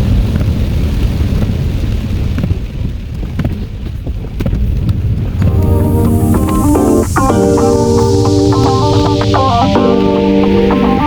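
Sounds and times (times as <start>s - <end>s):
steady rain: 0.0s - 11.0s
heavy low rumble: 5.0s - 11.0s.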